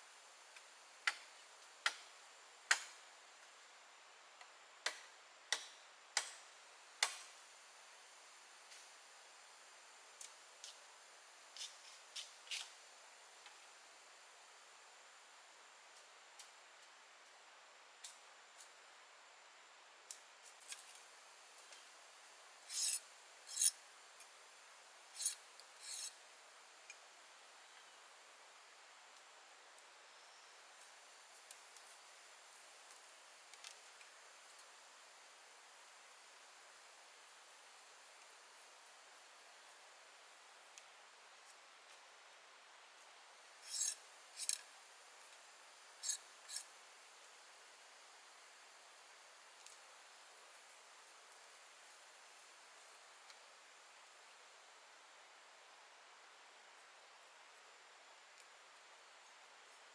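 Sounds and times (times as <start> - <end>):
blade scraping: 22.7 - 23.8, 43.7 - 44.6.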